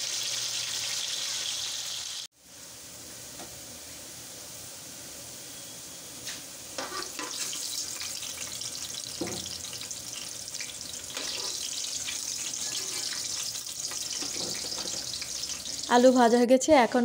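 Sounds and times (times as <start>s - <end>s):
potatoes sizzling in oil: 0.0s - 5.7s, 6.4s - 16.9s
skimmer knocking and scraping pot: 13.9s - 15.2s.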